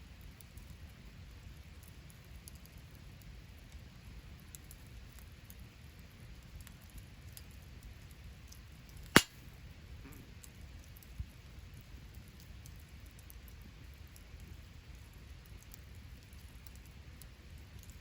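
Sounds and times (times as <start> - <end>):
campfire hissing and crackling: 0.0 - 9.3, 10.4 - 18.0
loud fire pop: 9.2 - 9.4.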